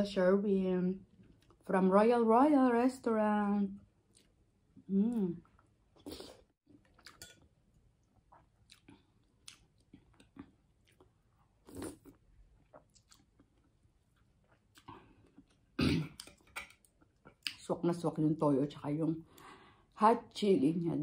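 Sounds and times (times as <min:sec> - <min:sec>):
person chewing noodles: 0:04.0 - 0:04.5, 0:05.1 - 0:17.6.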